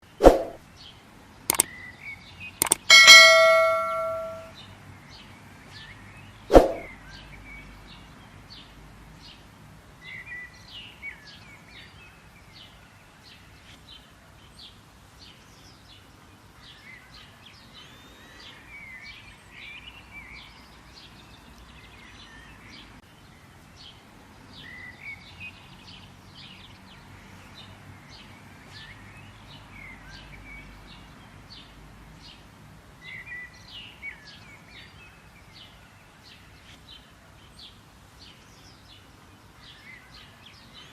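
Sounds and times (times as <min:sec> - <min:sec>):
sharp click: 0:00.2 - 0:00.6, 0:02.6 - 0:04.5, 0:06.5 - 0:06.9
birds chirping and twittering: 0:00.2 - 0:04.5.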